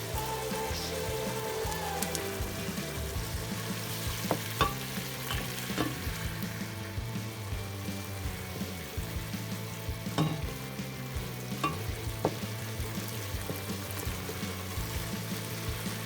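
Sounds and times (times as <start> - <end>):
food sizzling in a pan: 0.0 - 16.0
utensil knocking against pan: 4.2 - 6.1, 10.1 - 10.8, 11.5 - 12.6.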